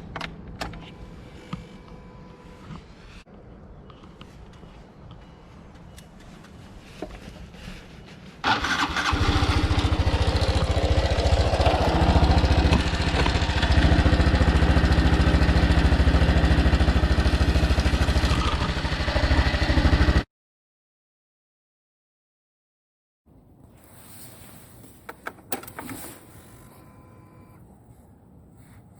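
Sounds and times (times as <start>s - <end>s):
motorcycle engine starting and running: 8.4s - 20.2s, 23.8s - 28.8s.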